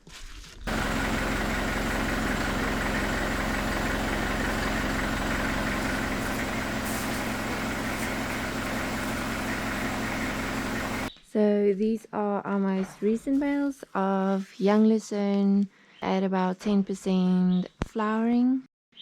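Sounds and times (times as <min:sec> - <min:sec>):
vehicle engine running: 0:00.7 - 0:11.1.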